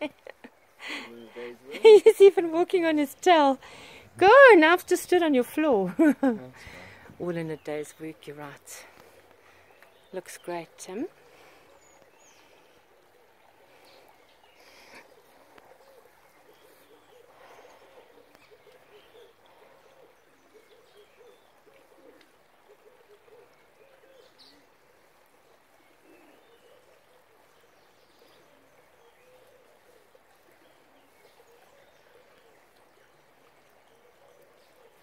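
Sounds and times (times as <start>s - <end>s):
bird cooing: 11.8s - 35.0s.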